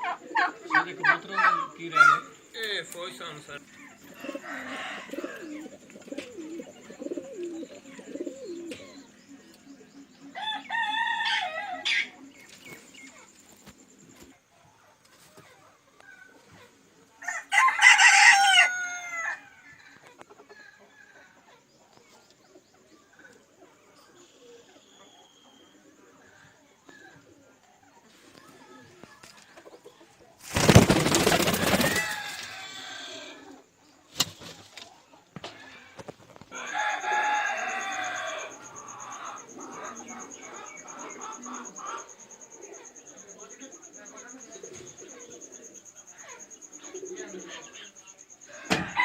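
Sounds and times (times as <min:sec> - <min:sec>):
rooster crowing: 0:03.9 - 0:05.8, 0:10.3 - 0:12.2, 0:17.2 - 0:21.2, 0:31.4 - 0:33.5, 0:36.5 - 0:39.6, 0:48.5 - 0:49.0.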